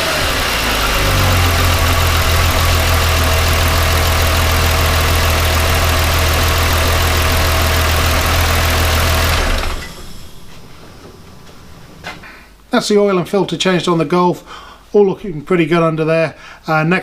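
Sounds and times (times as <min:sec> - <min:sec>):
car engine idling: 0:00.0 - 0:10.8.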